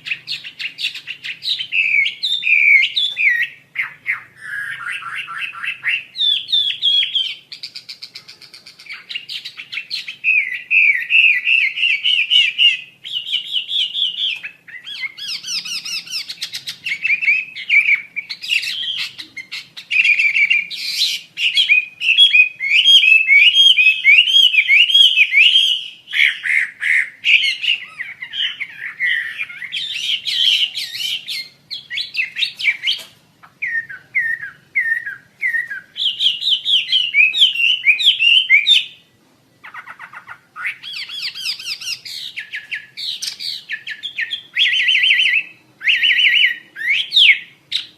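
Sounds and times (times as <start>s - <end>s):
songbird singing: 0.0s - 47.9s.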